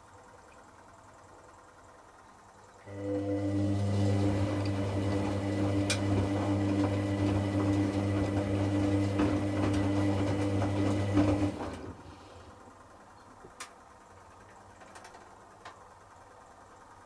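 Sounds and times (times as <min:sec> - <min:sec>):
washing machine motor humming: 0:00.0 - 0:14.8.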